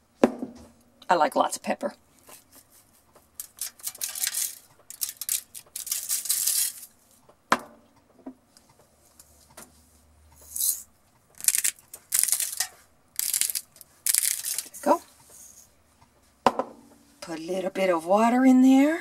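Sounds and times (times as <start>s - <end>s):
pepper grinder grinding: 3.4s - 6.9s, 10.5s - 10.8s, 11.4s - 14.9s.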